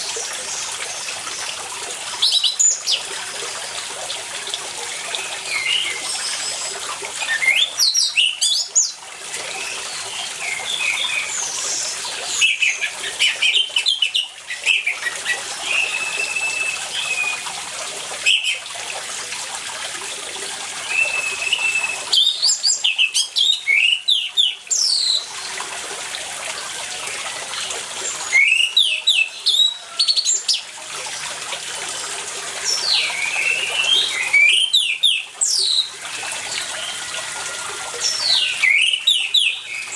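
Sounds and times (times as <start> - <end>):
water running: 0.0 - 39.9
bird singing whistled phrases: 9.7 - 17.4, 20.9 - 25.3, 28.3 - 30.2, 32.7 - 35.9, 38.0 - 39.9.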